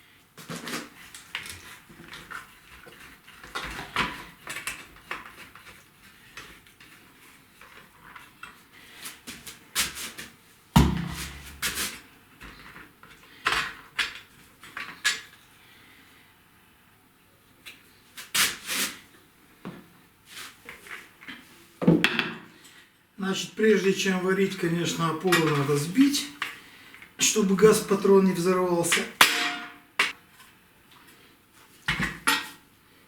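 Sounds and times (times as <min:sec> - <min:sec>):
heavy thump: 0:10.8 - 0:11.7
knocks and metal clatter: 0:10.8 - 0:11.7.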